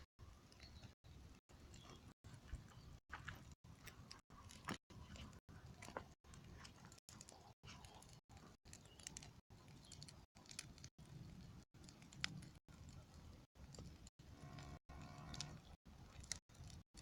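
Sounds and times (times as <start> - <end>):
campfire crackling: 0.0 - 17.0
fire pops: 3.4 - 14.7.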